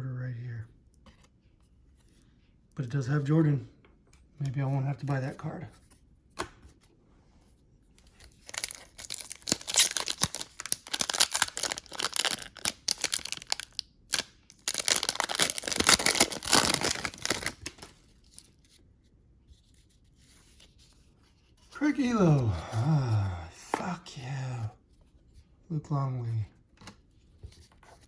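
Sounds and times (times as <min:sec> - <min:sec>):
wrapper crinkling and tearing: 0:08.3 - 0:18.6.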